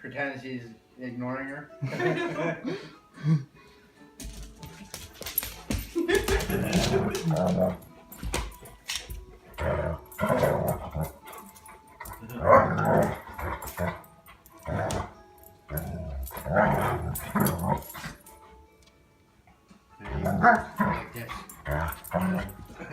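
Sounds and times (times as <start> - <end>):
dog growling and barking: 6.4 - 8.0, 9.4 - 18.3, 20.0 - 22.9.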